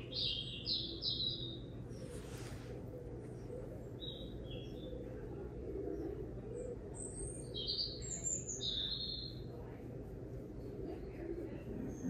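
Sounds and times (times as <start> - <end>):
small bird chirping: 0.0 - 2.6, 3.2 - 9.7
steady low hum: 0.0 - 12.0.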